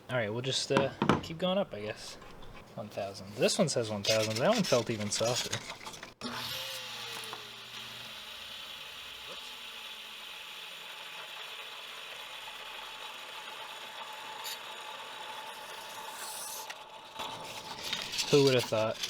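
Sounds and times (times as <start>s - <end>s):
belt sander whirring: 0.7s - 15.1s.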